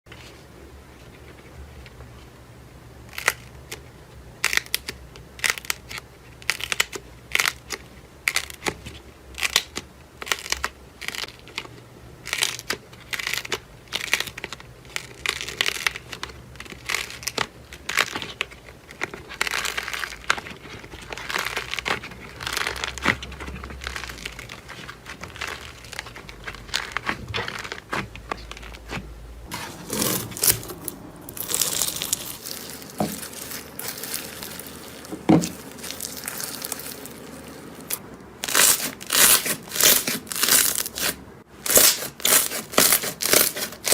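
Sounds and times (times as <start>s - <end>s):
crunchy material crushed by hand: 12.2s - 43.9s.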